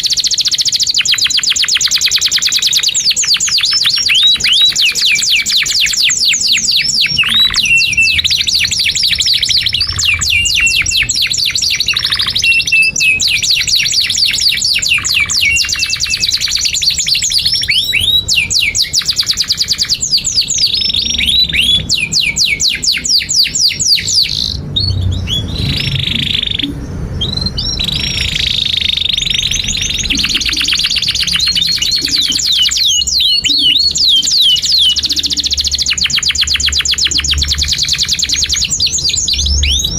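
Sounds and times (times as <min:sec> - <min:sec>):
canary singing fast trills: 0:00.0 - 0:39.9.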